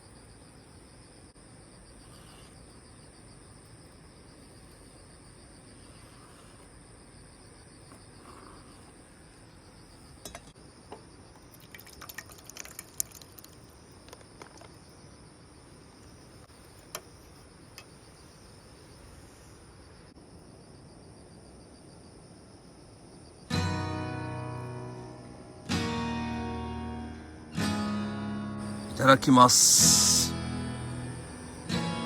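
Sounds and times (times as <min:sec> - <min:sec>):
insects chirping: 0:00.0 - 0:32.0
light clicks and clinks: 0:10.2 - 0:10.6.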